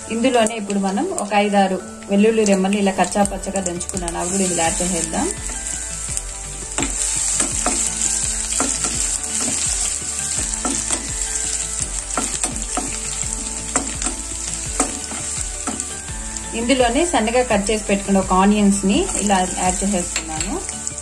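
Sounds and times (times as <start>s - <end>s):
garlic sizzling in hot oil: 0.0s - 21.0s
spatula tapping and scraping pan: 6.8s - 9.8s, 12.1s - 15.9s.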